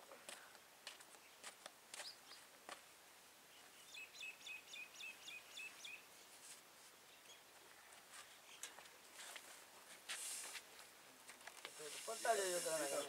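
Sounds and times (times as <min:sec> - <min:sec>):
bird chirping: 0:03.5 - 0:06.3, 0:07.1 - 0:08.9.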